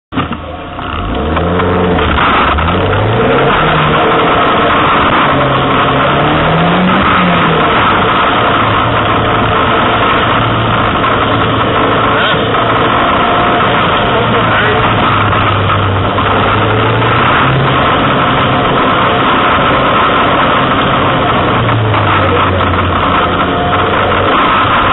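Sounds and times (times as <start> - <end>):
car engine accelerating hard: 0.1 - 24.9
road and spray noise: 0.1 - 24.9.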